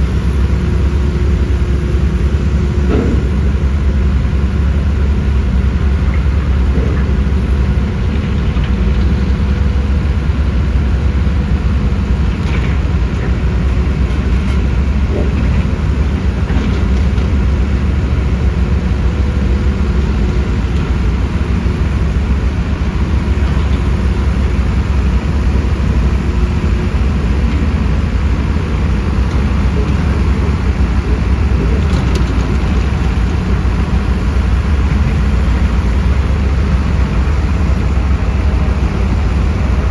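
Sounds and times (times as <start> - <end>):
diesel engines rumbling: 0.0 - 39.9.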